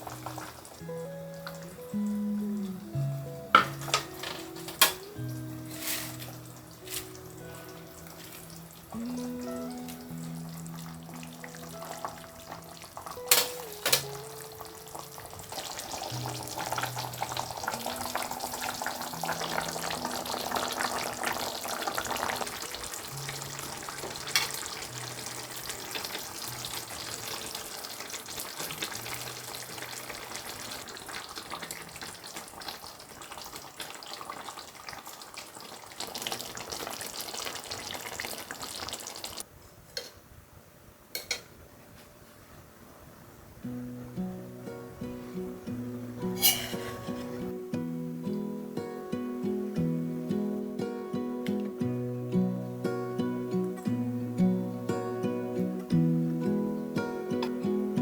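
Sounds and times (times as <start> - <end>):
soft background music: 0.0 - 30.9, 43.6 - 58.0
food sizzling in a pan: 0.0 - 39.5, 46.1 - 47.6.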